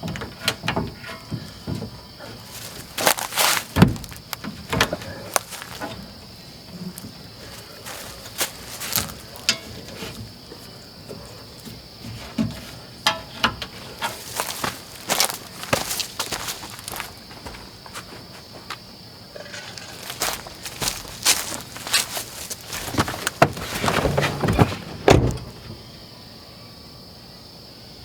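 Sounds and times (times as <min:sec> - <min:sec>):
knocks and clatter: 0:00.0 - 0:10.4, 0:19.4 - 0:25.8
insects buzzing: 0:00.0 - 0:28.0.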